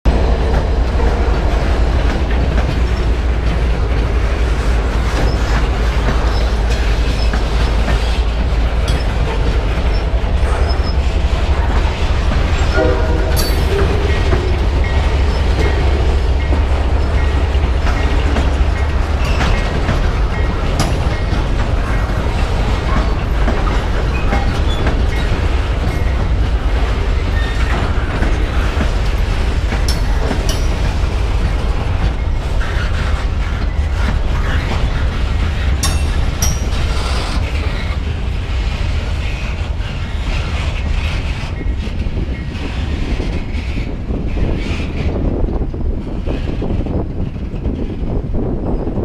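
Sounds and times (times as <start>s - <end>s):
freight train rolling past: 0.1s - 49.0s
train cars clattering over rails: 0.1s - 49.0s.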